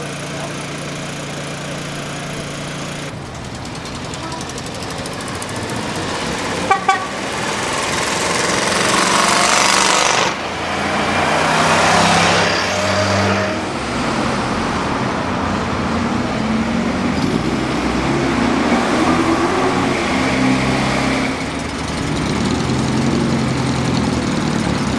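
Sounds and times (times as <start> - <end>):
three-wheeled truck engine: 0.0 - 24.9
horn toots: 4.0 - 10.4, 11.1 - 13.8.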